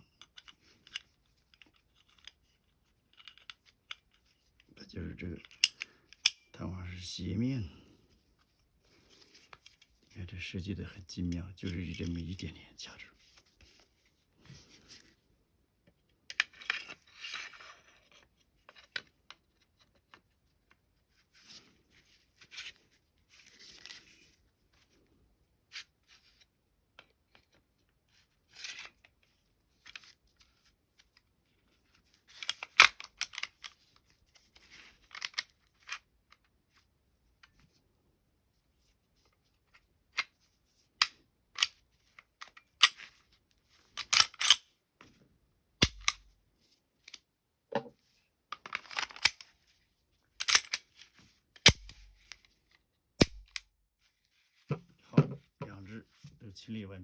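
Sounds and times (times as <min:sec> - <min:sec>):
sharp metallic clicks: 0:53.2 - 0:53.6.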